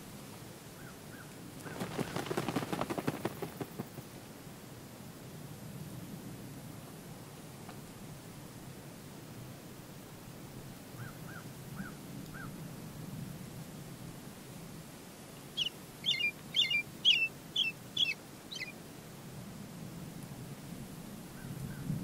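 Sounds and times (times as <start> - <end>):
birds calling harshly: 15.5 - 18.8.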